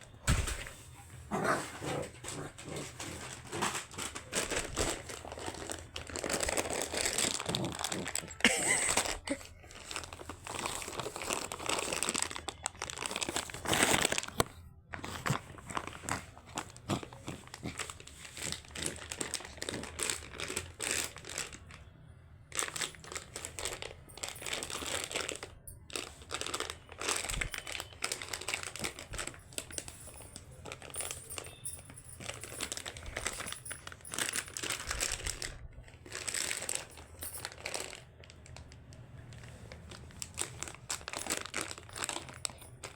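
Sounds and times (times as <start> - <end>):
crinkling and crumpling: 0.0 - 42.9.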